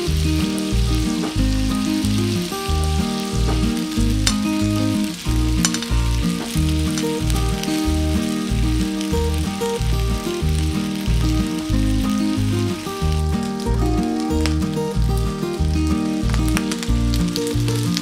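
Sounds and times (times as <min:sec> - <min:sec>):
background music with beat: 0:00.0 - 0:18.0
food sizzling in oil: 0:00.0 - 0:18.0.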